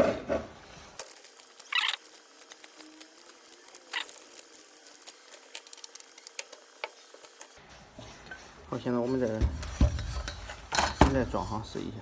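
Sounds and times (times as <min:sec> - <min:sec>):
small parts and tools clicking: 0:00.7 - 0:07.6.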